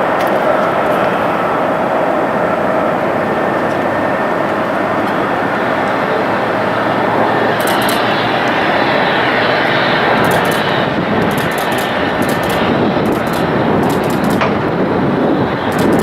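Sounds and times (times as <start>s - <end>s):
jet engines running loud: 0.0s - 16.0s.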